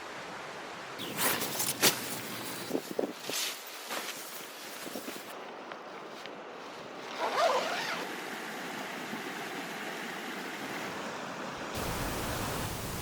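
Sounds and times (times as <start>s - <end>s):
river water rushing: 7.6s - 13.0s.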